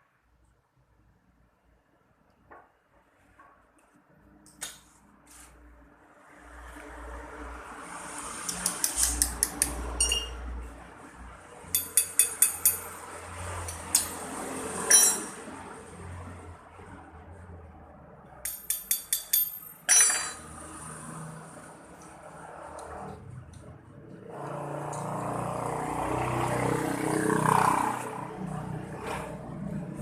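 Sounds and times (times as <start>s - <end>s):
metallic clicks of hand tools: 8.4s - 10.4s, 11.7s - 13.0s, 13.6s - 14.3s, 18.4s - 20.4s
loud metal clinks: 10.0s - 10.4s, 11.7s - 13.0s, 14.9s - 15.4s, 18.5s - 20.4s.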